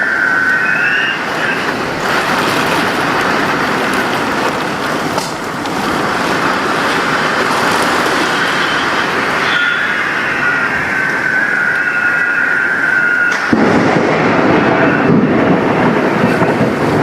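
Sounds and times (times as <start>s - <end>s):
high whistling tone: 0.0s - 1.7s, 8.1s - 13.5s
heavy rain: 0.0s - 17.0s
strong wind: 0.0s - 17.0s.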